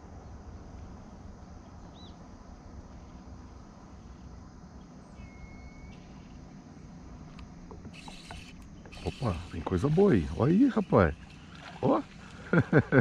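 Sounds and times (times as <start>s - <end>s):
thin bird whistle: 5.1s - 6.3s.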